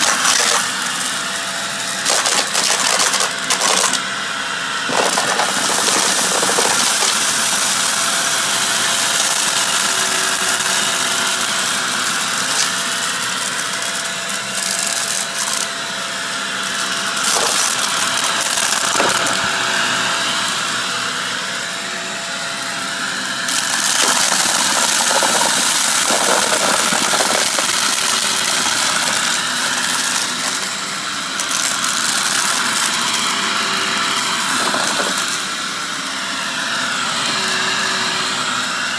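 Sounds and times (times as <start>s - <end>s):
debris crackling in vacuum: 0.0s - 4.0s, 4.8s - 15.7s, 16.7s - 19.8s, 23.5s - 30.8s
vacuum cleaner whine: 0.0s - 38.9s.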